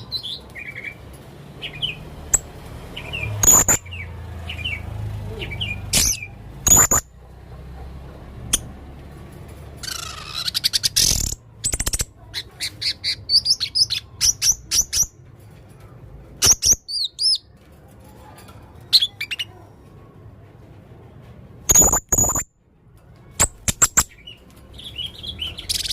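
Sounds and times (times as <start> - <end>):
parrot chirping: 1.6 - 7.2, 9.8 - 15.2, 21.7 - 22.4, 23.4 - 25.9.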